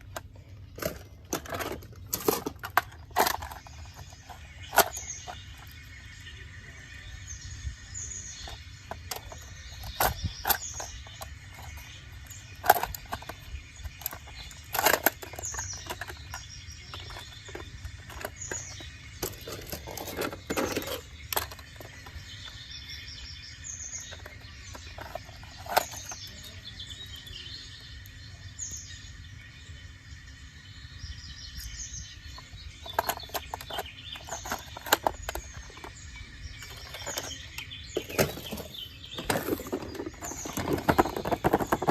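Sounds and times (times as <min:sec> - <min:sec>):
small birds chirping: 0:00.0 - 0:41.9
sharp clicks and knocks: 0:08.4 - 0:22.6, 0:32.8 - 0:36.0, 0:36.6 - 0:41.9.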